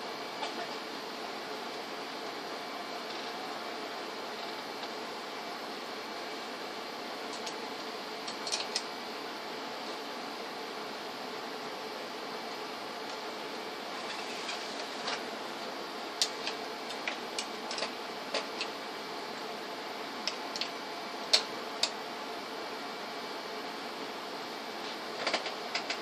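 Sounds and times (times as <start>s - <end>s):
fan-like hum: 0.0s - 26.0s
small tools clicking and tapping: 8.3s - 8.8s.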